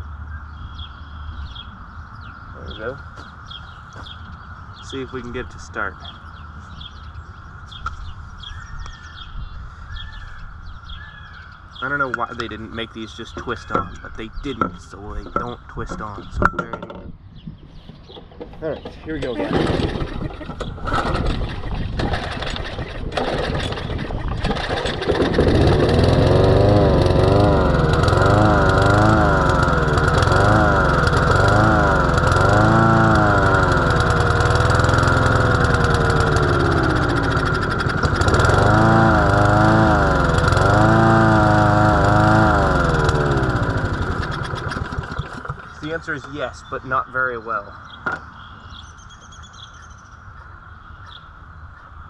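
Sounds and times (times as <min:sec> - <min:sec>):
lawnmower engine running unevenly: 0:18.4 - 0:46.4.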